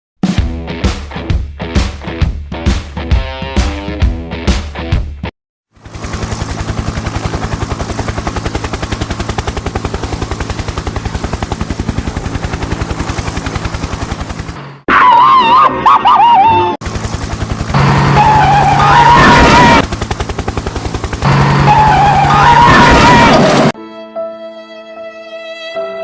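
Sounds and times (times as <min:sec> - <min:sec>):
warbling siren tone: 0:14.9 - 0:16.8, 0:17.7 - 0:19.9, 0:21.2 - 0:23.7.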